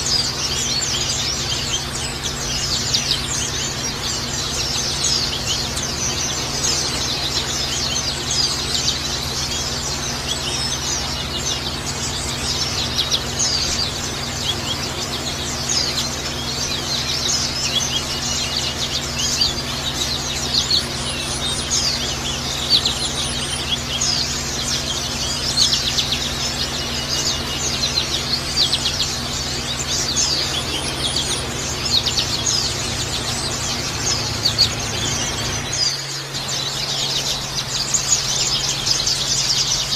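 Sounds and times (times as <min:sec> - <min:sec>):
low hum: 0:00.0 - 0:39.9
songbirds chirping and singing: 0:00.0 - 0:39.9.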